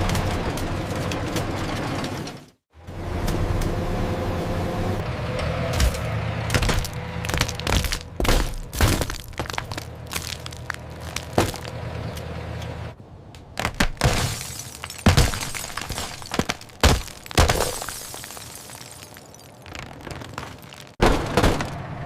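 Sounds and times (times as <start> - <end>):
low engine hum: 0.0 - 13.3
glass breaking: 13.8 - 21.7.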